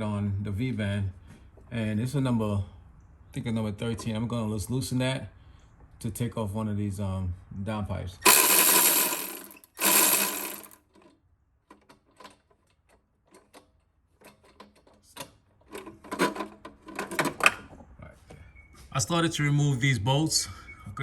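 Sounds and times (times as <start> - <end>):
ratchet clicking: 8.3 - 10.8.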